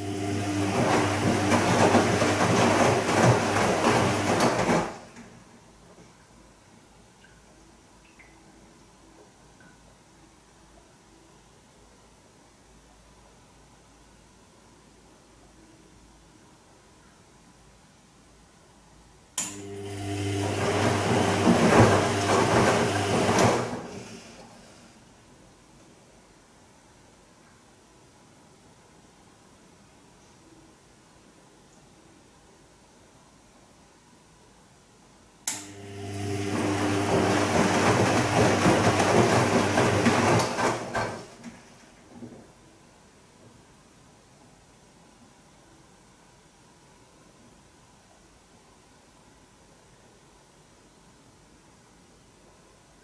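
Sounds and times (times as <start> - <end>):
water washing noise: 0.0 - 5.2, 20.0 - 24.9, 36.0 - 41.7
washing machine motor hum: 0.0 - 5.5, 19.5 - 25.1, 35.5 - 42.2
wet laundry sloshing: 0.1 - 5.2, 36.3 - 41.7.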